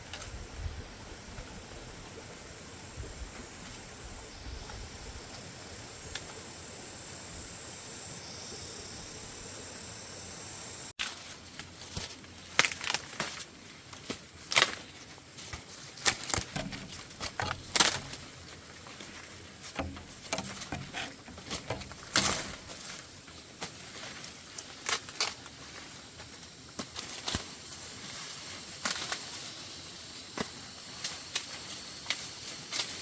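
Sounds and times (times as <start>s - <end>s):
rustles and crackles of handling: 11.0s - 29.8s.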